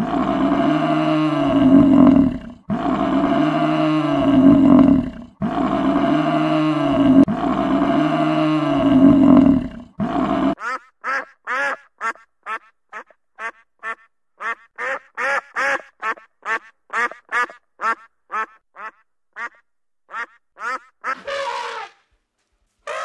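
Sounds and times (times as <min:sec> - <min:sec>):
buffalo bellowing: 0:00.0 - 0:10.6, 0:20.1 - 0:22.0
ducks quacking: 0:10.6 - 0:21.9.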